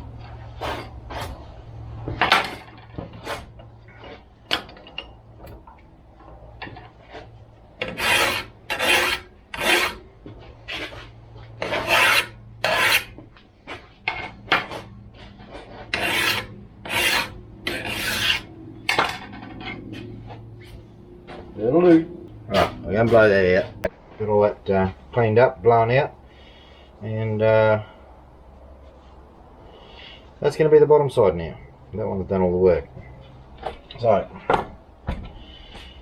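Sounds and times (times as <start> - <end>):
metal file rasping on metal: 7.8 - 13.2, 14.7 - 19.2.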